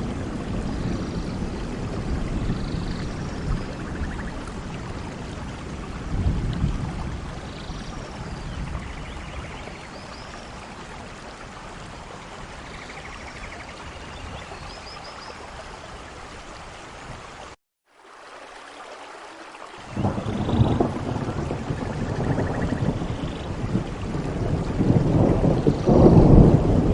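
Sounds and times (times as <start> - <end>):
low thunder rumble: 0.0 - 11.1, 19.8 - 26.9
steady heavy rain: 0.0 - 26.9.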